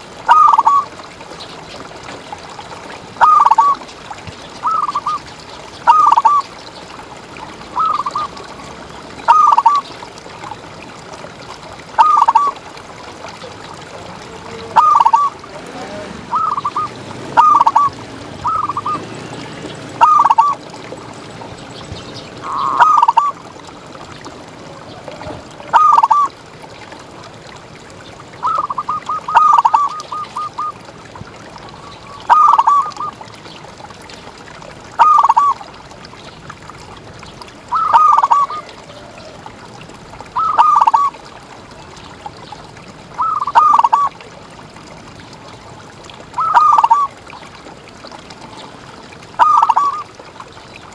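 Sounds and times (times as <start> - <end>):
dove cooing: 3.2 - 3.8, 5.9 - 6.4, 12.0 - 12.6, 13.9 - 23.5, 24.7 - 26.3, 28.4 - 30.8, 32.3 - 33.2, 35.0 - 35.6, 37.7 - 39.4, 40.4 - 41.1, 43.2 - 44.1, 46.4 - 47.2, 49.4 - 50.1.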